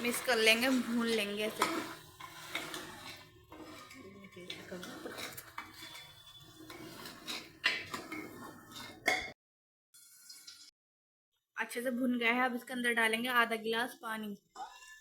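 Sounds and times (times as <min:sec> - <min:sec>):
food frying: 0:00.0 - 0:09.1
spoon scraping a metal pot: 0:00.0 - 0:09.3.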